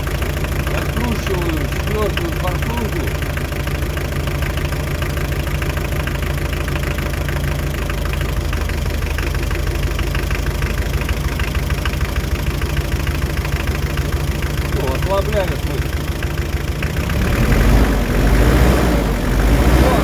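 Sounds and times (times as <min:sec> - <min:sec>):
diesel engine idling with knock: 0:00.0 - 0:20.0.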